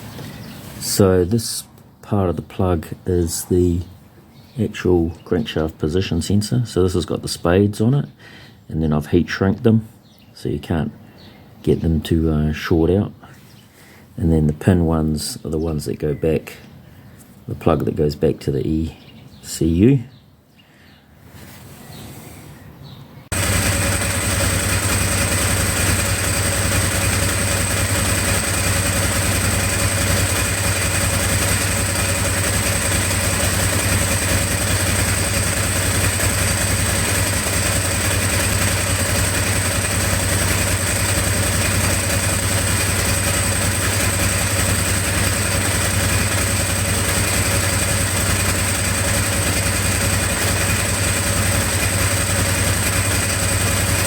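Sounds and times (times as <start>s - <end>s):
motorcycle engine idling: 23.3s - 54.0s.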